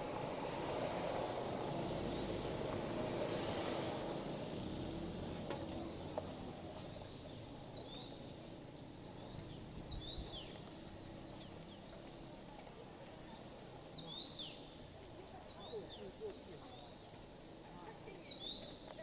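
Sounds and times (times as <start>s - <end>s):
small birds chirping: 2.0s - 2.5s, 5.8s - 19.0s.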